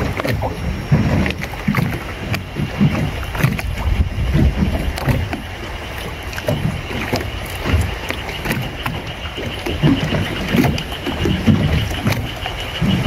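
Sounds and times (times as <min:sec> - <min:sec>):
water lapping against boat hull: 0:00.0 - 0:13.0.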